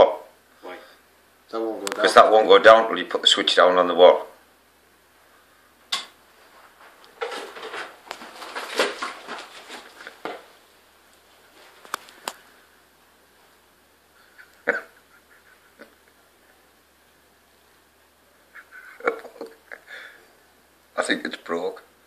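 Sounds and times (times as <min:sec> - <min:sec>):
scraping and rattling: 0:06.7 - 0:10.5.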